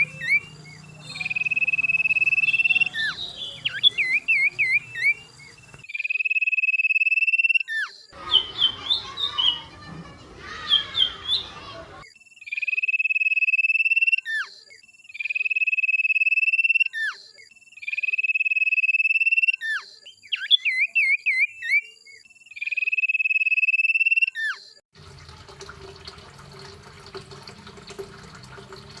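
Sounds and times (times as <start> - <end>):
songbird trilling: 0.0 - 5.8, 8.2 - 12.0.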